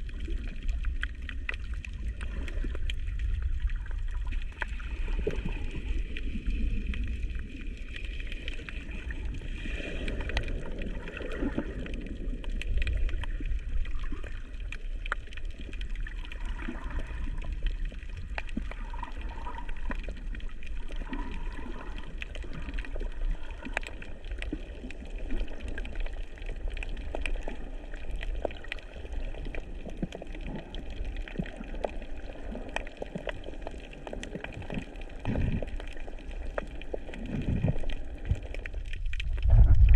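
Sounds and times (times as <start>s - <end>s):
muffled underwater wash and gurgle: 0.0s - 39.9s
low rumble: 37.4s - 39.9s.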